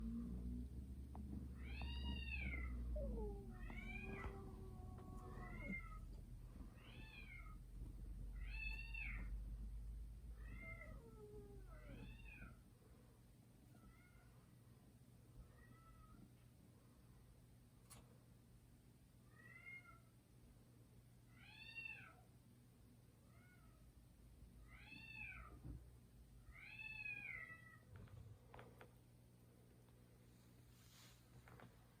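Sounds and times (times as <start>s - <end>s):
cats yowling: 1.6s - 6.2s
low drawn-out cat moan: 1.9s - 6.2s.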